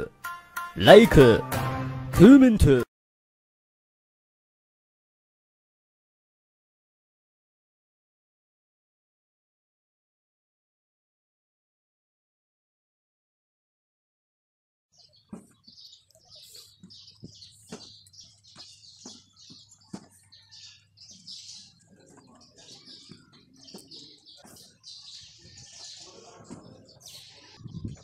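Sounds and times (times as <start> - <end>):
small birds chirping: 14.9 - 28.0.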